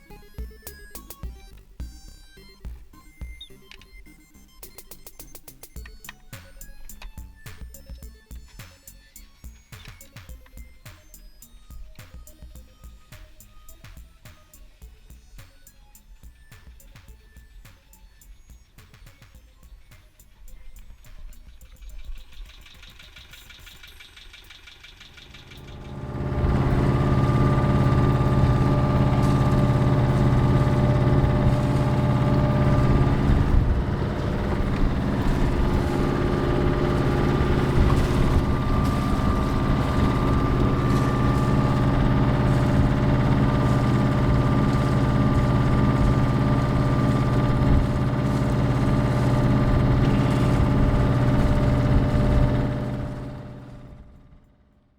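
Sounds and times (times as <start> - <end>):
diesel engine starting and idling: 22.6 - 54.4.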